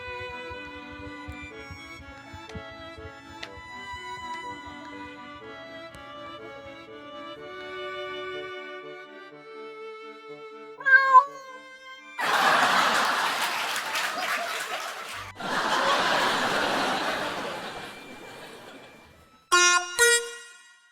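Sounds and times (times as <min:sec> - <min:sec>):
soft background music: 0:00.0 - 0:13.1
cat meowing: 0:10.8 - 0:11.6.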